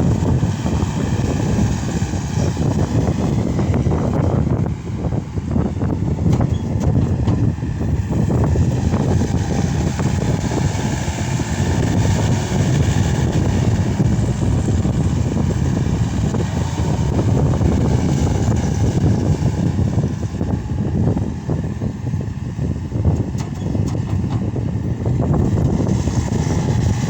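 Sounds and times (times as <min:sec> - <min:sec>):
loader diesel engine running: 0:00.0 - 0:27.0.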